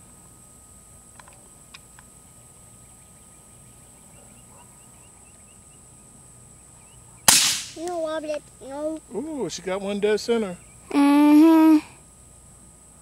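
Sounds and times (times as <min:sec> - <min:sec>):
faint bird chirps: 0:02.2 - 0:07.3
high-pitched hiss: 0:06.8 - 0:12.0.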